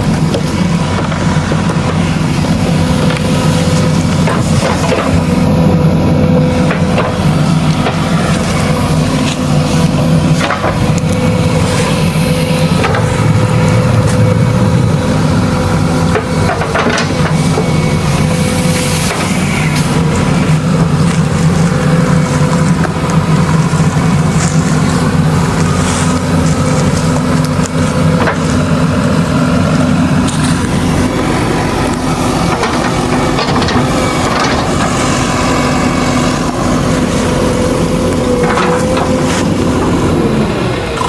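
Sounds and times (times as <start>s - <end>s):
diesel engine running: 0.0s - 41.0s
knocks and clanks: 16.0s - 17.7s, 32.4s - 35.2s, 38.3s - 39.4s.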